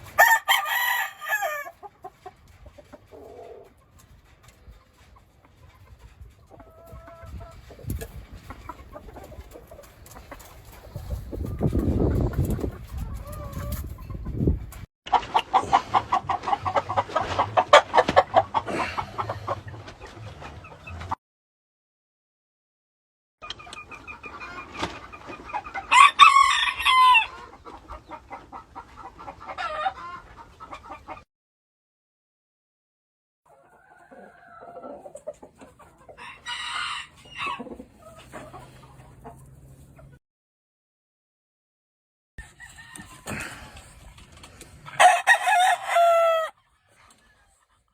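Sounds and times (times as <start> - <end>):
chicken calls: 0.0 - 21.2, 23.4 - 31.2, 33.5 - 40.2, 42.4 - 47.9
chickens clucking: 0.0 - 21.2, 23.4 - 31.2, 33.5 - 40.2, 42.4 - 47.9
rooster crowing: 0.2 - 1.8, 25.9 - 27.3, 45.0 - 46.6.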